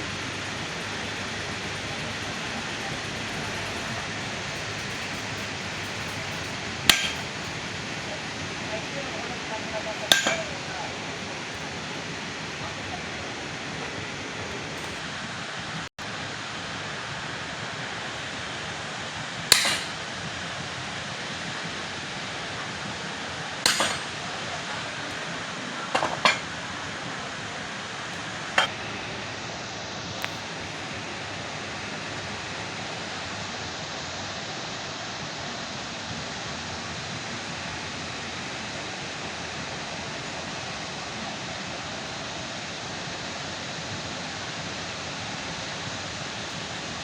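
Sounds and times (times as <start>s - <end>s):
hammer blows on metal: 0.0s - 8.4s, 10.0s - 10.7s, 19.5s - 20.0s, 23.6s - 24.2s
steady background hiss: 0.0s - 47.0s.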